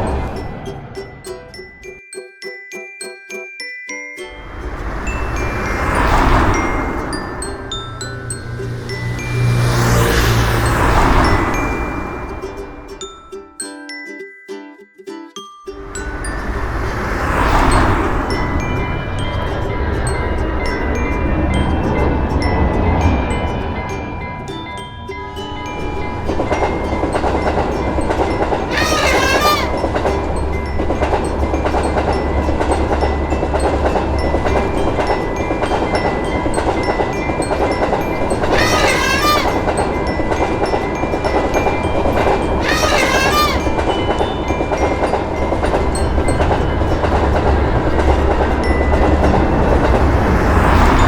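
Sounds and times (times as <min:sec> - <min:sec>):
crossing warning bell ringing: 0:00.0 - 0:02.3, 0:04.2 - 0:14.1, 0:15.7 - 0:51.0
train wheels clattering: 0:26.1 - 0:51.0
train horn blast: 0:28.6 - 0:30.1, 0:38.4 - 0:39.9, 0:42.6 - 0:43.9.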